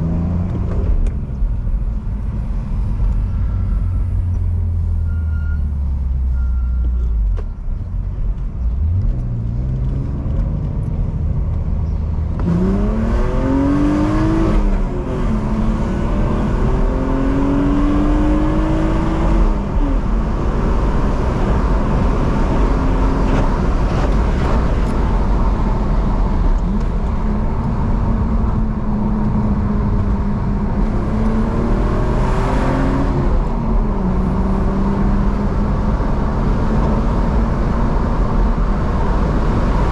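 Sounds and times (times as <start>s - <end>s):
car engine revving through gears: 8.6s - 39.9s.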